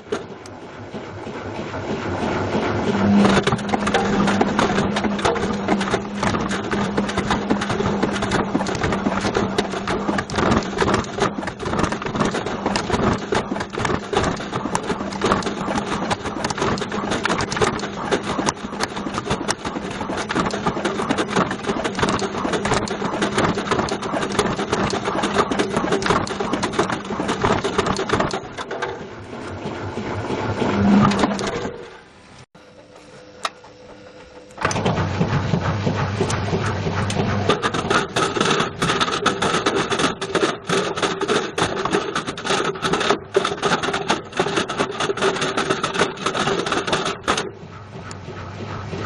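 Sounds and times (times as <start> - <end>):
washing machine motor hum: 0.0 - 49.0
object clattering in washing machine drum: 3.1 - 29.1, 34.6 - 47.8.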